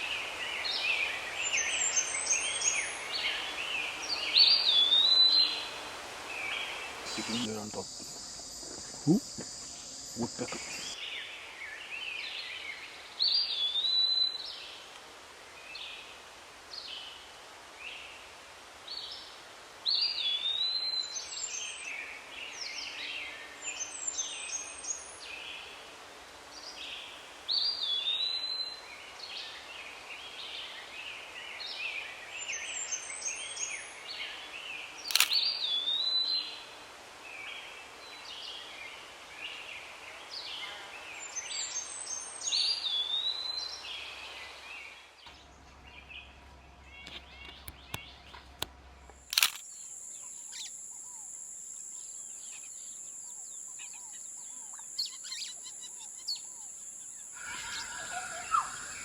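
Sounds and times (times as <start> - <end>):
birds chirping: 6.4 - 11.0, 49.1 - 59.0
sharp click: 35.1 - 35.4, 49.3 - 50.8
bird whistled phrase: 57.4 - 59.0.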